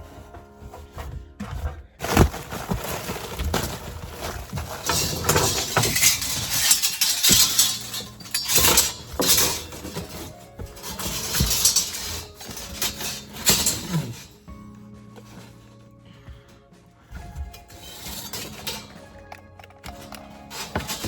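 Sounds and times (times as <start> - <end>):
rustling: 0.0 - 21.0
scraping: 0.0 - 21.0
metallic clinks and knocks: 4.7 - 14.3, 17.2 - 21.0.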